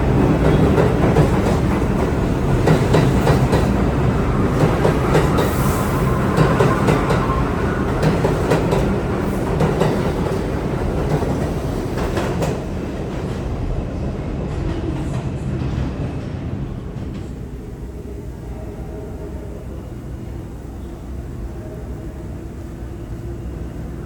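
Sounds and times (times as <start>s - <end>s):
subway train rumbling: 0.0s - 24.0s.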